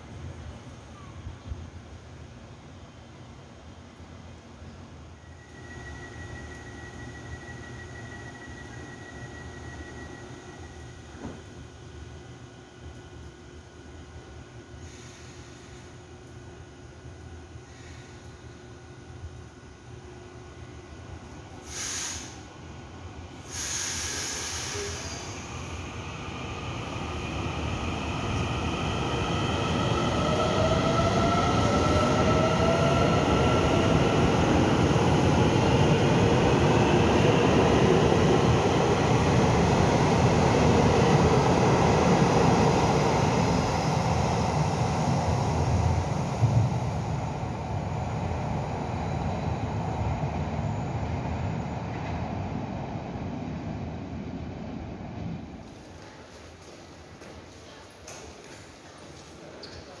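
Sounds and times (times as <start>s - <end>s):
air hisses: 21.6s - 22.4s, 23.4s - 25.5s.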